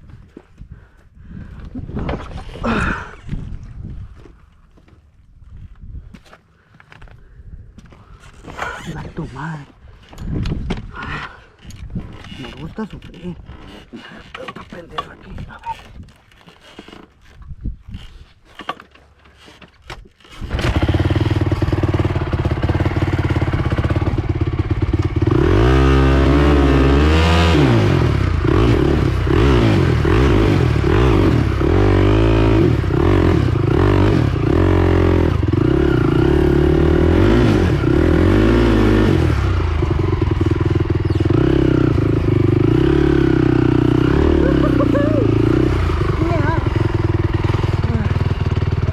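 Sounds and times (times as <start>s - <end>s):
quad engine kick-started and revving: 8.5s - 9.2s, 20.2s - 48.9s.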